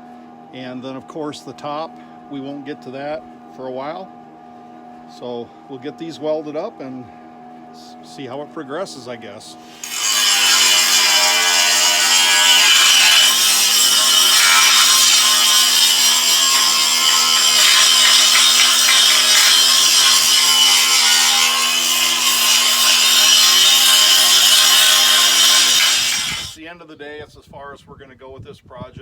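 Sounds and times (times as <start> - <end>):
grinder grinding metal: 9.7 - 26.6.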